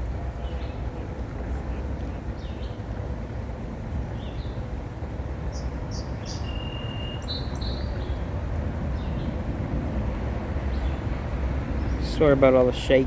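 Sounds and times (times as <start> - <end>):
low outdoor rumble: 0.0 - 13.0
small birds chirping: 0.4 - 2.9, 3.9 - 4.7, 5.5 - 9.5
bird whistle: 6.3 - 7.9.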